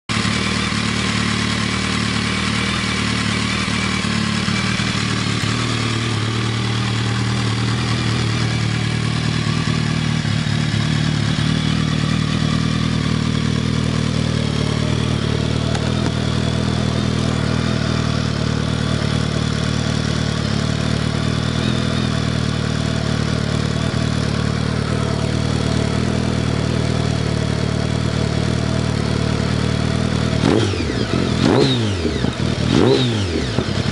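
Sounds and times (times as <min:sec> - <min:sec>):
motorcycle engine idling: 0:00.1 - 0:33.9.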